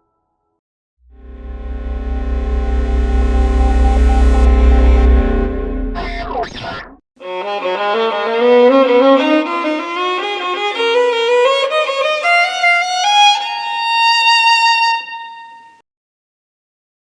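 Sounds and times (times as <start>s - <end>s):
violin playing: 7.2s - 15.8s.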